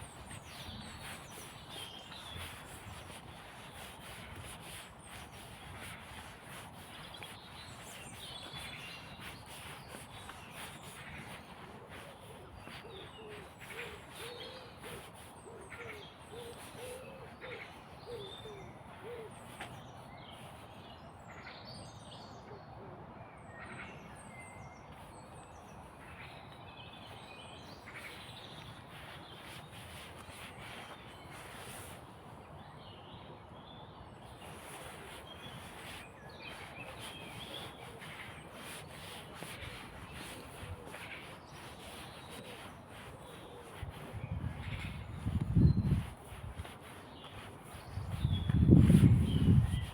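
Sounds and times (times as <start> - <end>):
woodland birds chirping: 0.0 - 22.7, 23.5 - 49.9.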